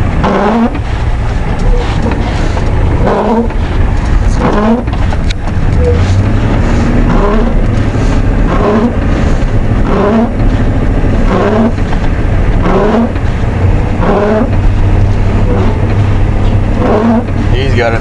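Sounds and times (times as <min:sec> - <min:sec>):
diesel truck engine running: 0:00.0 - 0:18.0
short rising squeak: 0:05.8 - 0:06.2, 0:14.0 - 0:14.6, 0:16.8 - 0:17.4.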